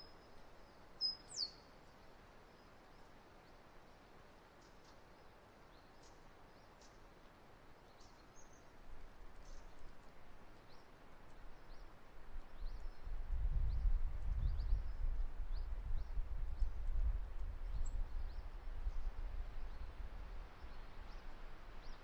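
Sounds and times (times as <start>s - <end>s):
small birds chirping: 0.0s - 3.6s, 7.8s - 8.8s
wind gusting on microphone: 12.5s - 21.7s.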